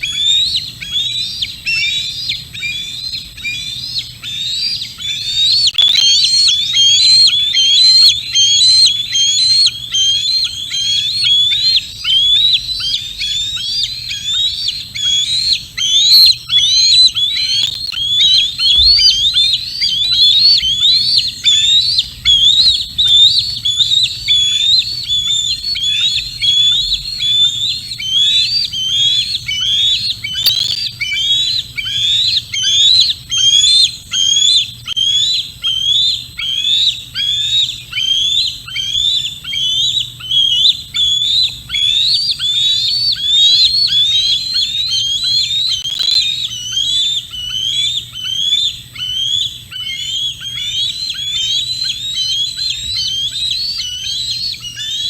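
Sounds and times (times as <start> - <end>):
eagle whistled calls: 0.0 - 55.0
sharp clicks: 5.8 - 6.4, 16.1 - 16.4, 17.4 - 19.2, 30.4 - 30.9, 45.8 - 46.3.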